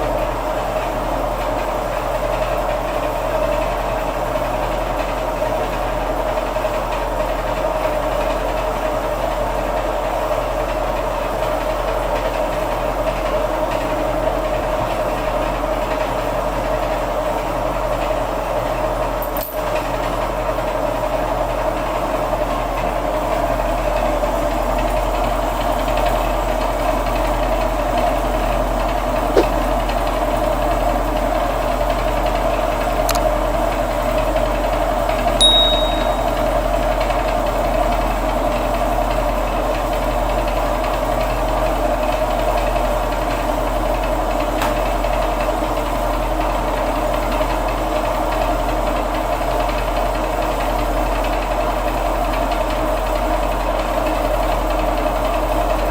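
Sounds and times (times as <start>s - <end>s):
small machine humming: 35.4s - 37.0s.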